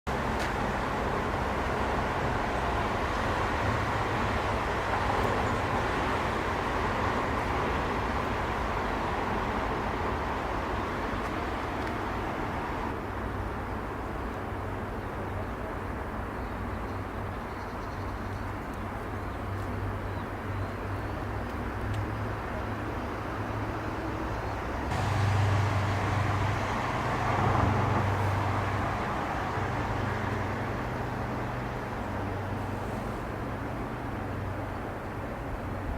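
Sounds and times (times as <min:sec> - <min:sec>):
jet airliner engines rushing: 0:24.8 - 0:34.3.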